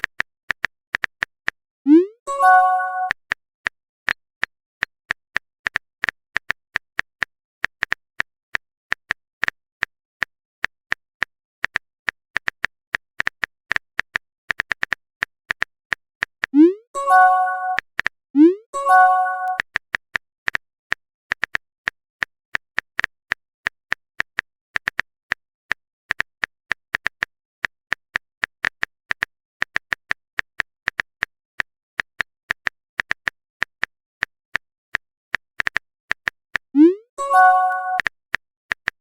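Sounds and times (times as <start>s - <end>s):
keyboard typing taps: 8.9s - 19.8s, 28.6s - 39.0s.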